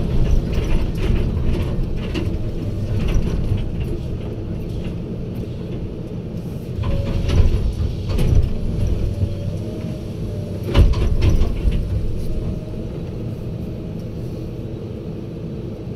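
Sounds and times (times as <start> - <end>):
heavy diesel machinery running: 0.0 - 15.9
metallic knocks and clanks: 6.8 - 9.4, 10.6 - 13.0.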